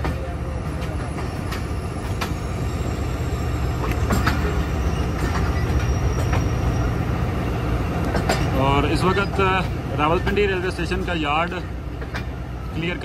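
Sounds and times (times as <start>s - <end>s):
train rumbling: 0.0s - 13.0s
faint wheel squeal: 0.9s - 8.0s
wheels clicking over rail joints: 3.8s - 6.8s, 8.0s - 13.0s.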